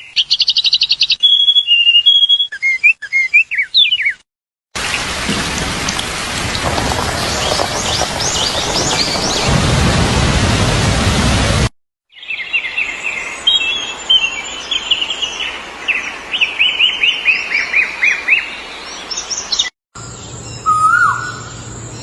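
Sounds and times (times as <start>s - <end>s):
birds chirping: 0.0s - 4.2s, 4.8s - 9.6s
heavy rain hissing: 4.8s - 11.7s.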